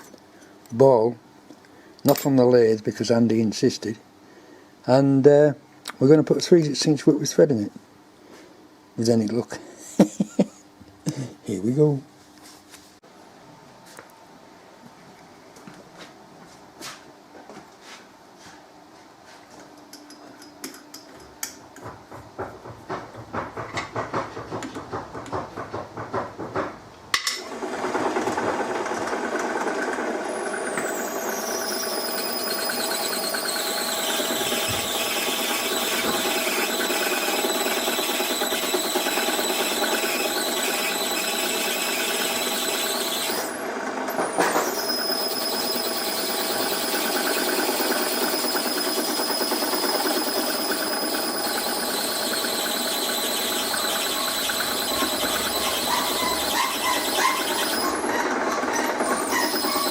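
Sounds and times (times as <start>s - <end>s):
drill bit squealing into metal: 30.6s - 43.6s, 44.3s - 59.9s.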